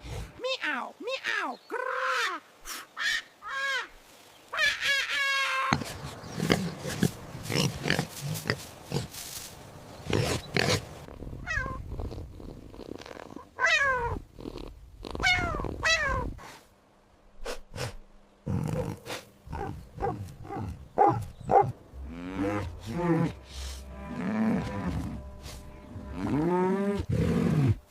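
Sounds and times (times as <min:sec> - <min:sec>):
cat meowing: 0:11.4 - 0:11.8, 0:13.6 - 0:14.2, 0:15.2 - 0:16.3.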